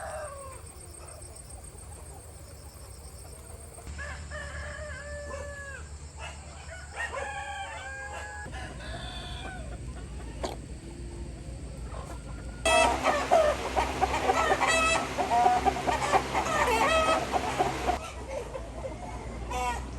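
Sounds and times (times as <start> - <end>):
roosters crowing: 0.0 - 1.1, 3.8 - 10.4, 12.0 - 18.0
low steady hum: 8.5 - 18.0.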